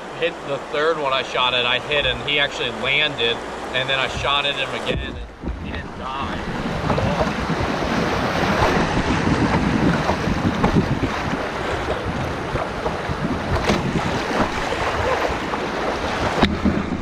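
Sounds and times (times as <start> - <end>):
river water rushing and splashing: 0.0 - 17.0
wind noise on microphone: 4.2 - 17.0.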